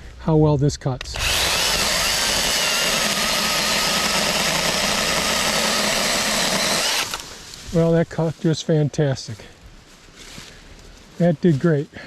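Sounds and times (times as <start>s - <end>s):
chainsaw cutting a limb: 1.0s - 7.6s.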